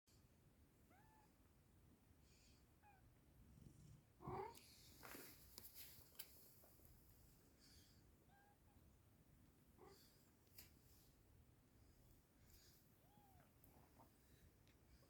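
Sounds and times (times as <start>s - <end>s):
rustling: 4.8s - 7.3s.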